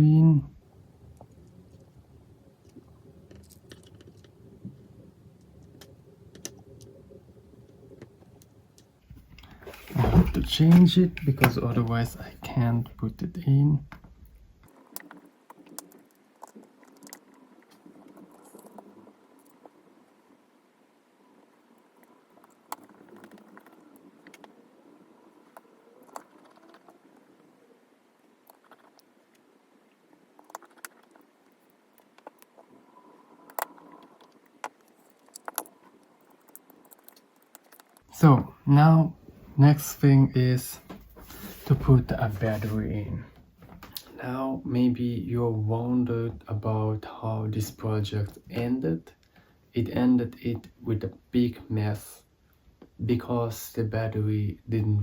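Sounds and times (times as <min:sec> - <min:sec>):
low steady hum: 0:00.0 - 0:55.0
small parts and tools clicking: 0:13.9 - 0:19.8, 0:28.4 - 0:29.4, 0:30.4 - 0:32.8, 0:33.4 - 0:38.1.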